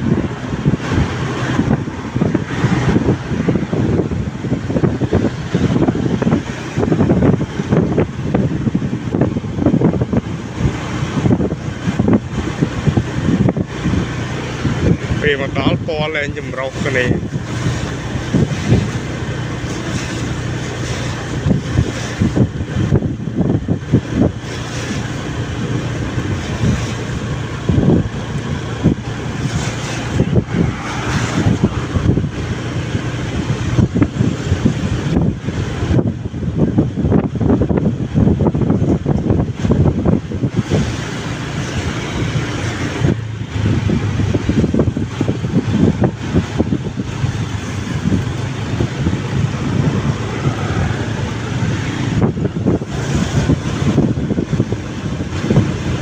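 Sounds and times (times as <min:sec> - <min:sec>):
road noise: 0:00.0 - 0:56.0
wind buffeting microphone: 0:00.0 - 0:56.0
motorbike engine: 0:16.7 - 0:56.0.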